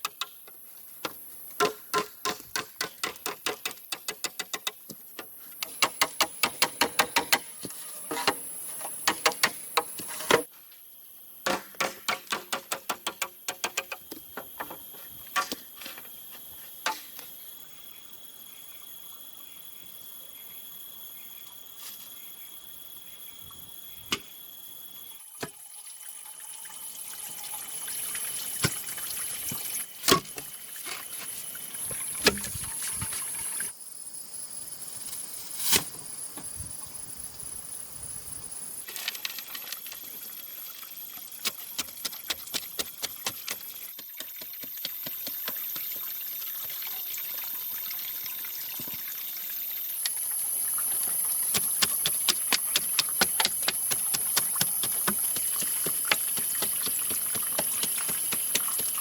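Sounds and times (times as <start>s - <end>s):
knocks of chopping bamboo: 1.0s - 5.0s, 5.6s - 7.6s, 9.1s - 10.5s, 11.4s - 14.8s, 30.1s - 30.5s, 51.0s - 59.0s.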